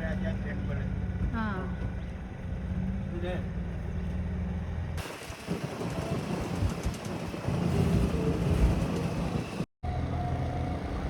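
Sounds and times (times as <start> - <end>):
wind and water buffeting: 5.0 - 9.7.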